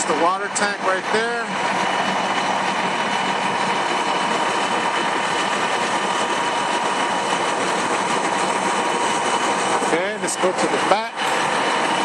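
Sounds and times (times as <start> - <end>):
faint constant whine: 0.0 - 12.0.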